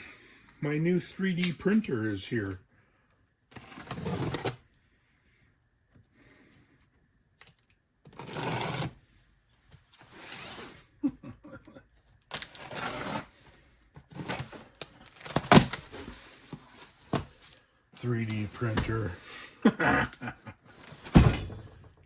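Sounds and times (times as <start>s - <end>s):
packaging rustling: 14.1s - 19.1s.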